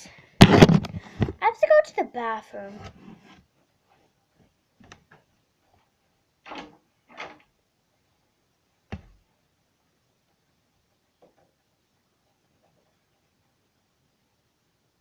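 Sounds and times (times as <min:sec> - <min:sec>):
knocks and bumps: 0:00.4 - 0:01.4.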